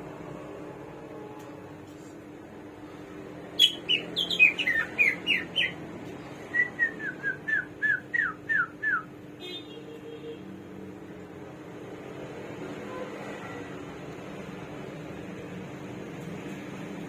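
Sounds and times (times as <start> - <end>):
bird singing whistled notes: 3.6 - 5.8, 6.5 - 9.1.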